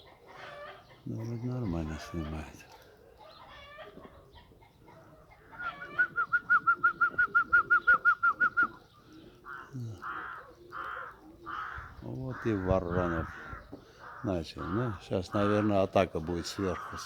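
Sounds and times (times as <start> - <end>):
crows cawing: 9.0 - 17.0.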